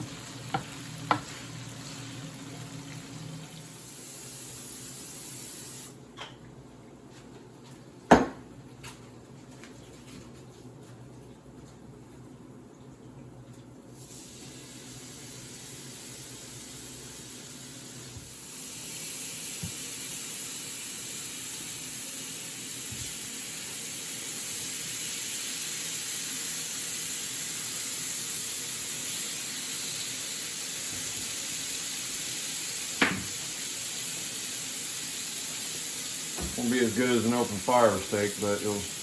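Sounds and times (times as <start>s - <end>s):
steak sizzling in a pan: 0.0s - 5.9s, 14.1s - 39.0s.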